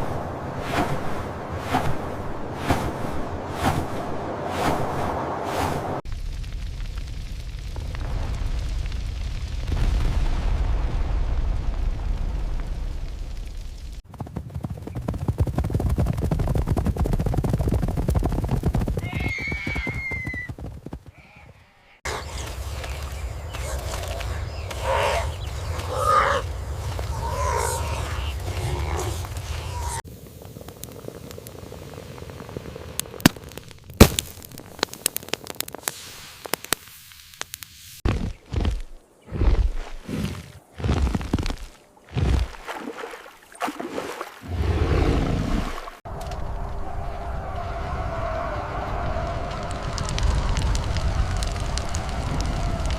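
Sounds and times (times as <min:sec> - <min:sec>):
fire crackles and pops: 0:00.0 - 0:14.7, 0:22.0 - 0:39.1, 0:39.8 - 0:42.7, 0:45.8 - 0:52.9
animals galloping in a stampede: 0:12.1 - 0:33.9, 0:46.1 - 0:52.9
wildfire hissing: 0:21.6 - 0:34.0, 0:34.6 - 0:38.0, 0:46.5 - 0:52.9
low rumble: 0:22.0 - 0:32.9
high drawn-out animal cry: 0:23.6 - 0:30.0.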